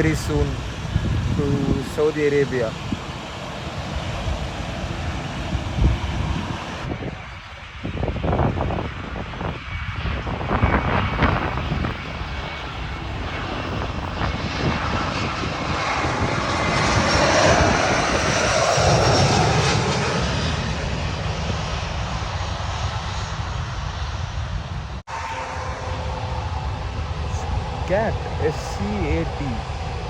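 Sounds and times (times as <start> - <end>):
jet airliner passing overhead: 0.0 - 30.0.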